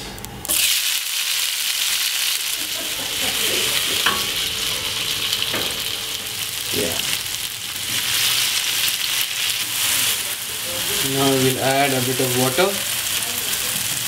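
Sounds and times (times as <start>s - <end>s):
tomatoes sizzling in a pan: 0.4s - 14.0s.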